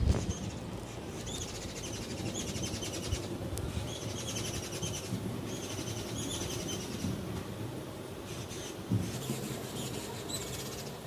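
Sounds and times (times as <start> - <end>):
steady low rumble: 0.0 - 11.0
small bird trilling: 0.1 - 7.1.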